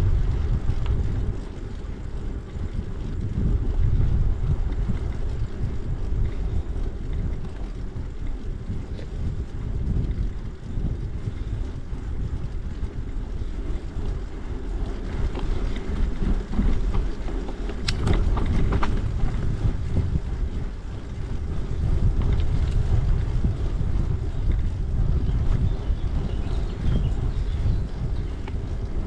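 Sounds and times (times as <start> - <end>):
bicycle tyres on trail: 0.0 - 29.0
wind buffeting microphone: 0.0 - 29.0
sharp clicks and rattles: 4.7 - 20.8.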